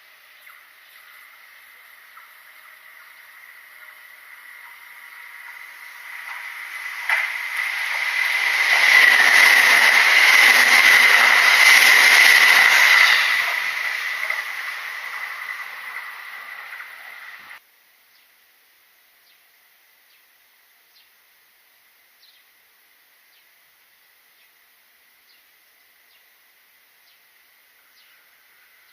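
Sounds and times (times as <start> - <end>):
electric train passing: 1.0 - 17.6.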